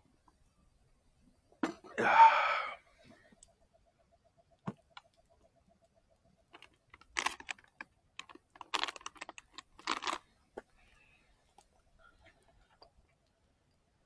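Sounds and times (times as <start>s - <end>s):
packaging rustling: 6.6s - 10.3s.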